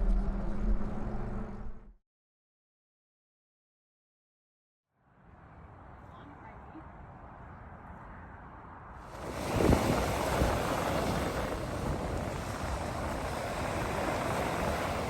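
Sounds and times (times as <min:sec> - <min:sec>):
rushing noise with low rumble: 0:00.0 - 0:01.9, 0:08.2 - 0:15.0.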